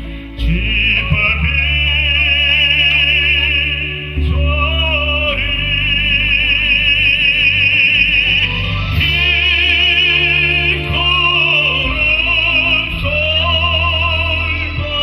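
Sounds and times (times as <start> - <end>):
sustained instrumental accompaniment: 0.0 - 15.0
operatic solo singing: 0.4 - 15.0.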